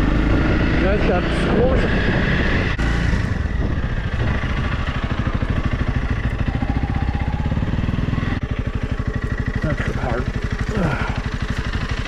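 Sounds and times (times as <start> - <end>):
motorcycle engine idling: 2.9 - 12.0.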